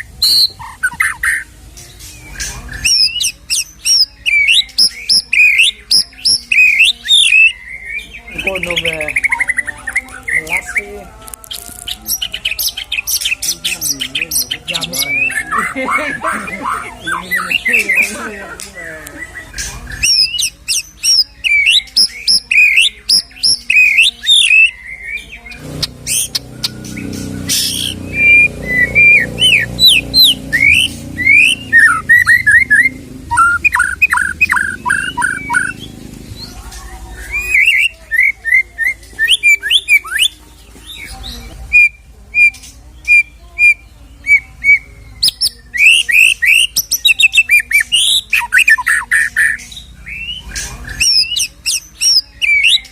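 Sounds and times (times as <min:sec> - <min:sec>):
bird singing varied whistles: 0:00.0 - 0:01.4, 0:25.8 - 0:35.8.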